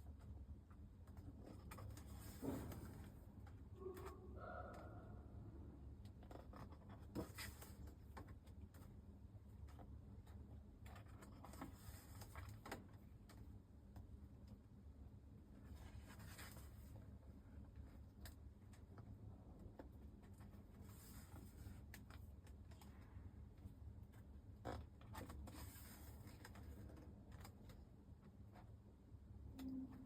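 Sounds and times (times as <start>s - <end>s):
low steady hum: 0.0s - 30.0s
faint clicks and rustles: 15.6s - 28.8s.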